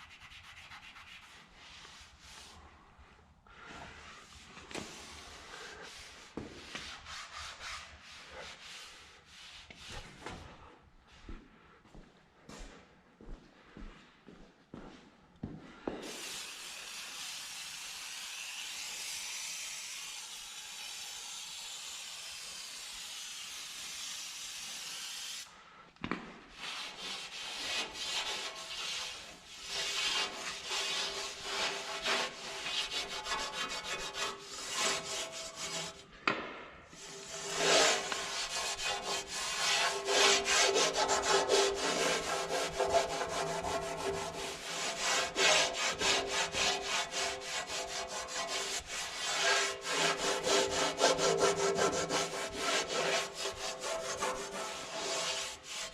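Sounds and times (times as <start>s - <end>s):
scrubbing on metal: 26.9s - 36.1s, 37.0s - 55.9s.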